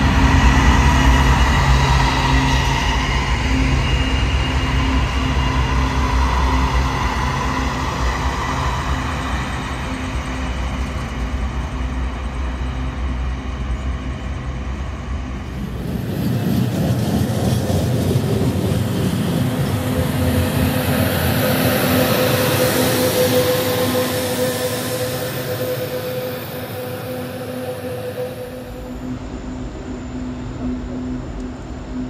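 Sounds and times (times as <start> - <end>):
rolling rail noise with tone: 0.0 - 32.0
train rumbling past: 0.0 - 32.0.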